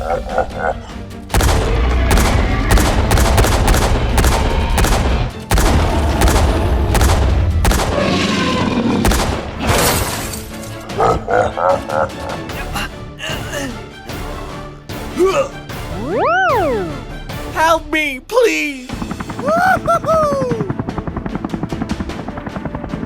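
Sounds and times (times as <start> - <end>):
music: 0.0 - 23.0
rapid gunfire bangs: 1.3 - 8.3, 9.0 - 10.1, 18.9 - 19.4
deep explosion booms: 1.3 - 9.8.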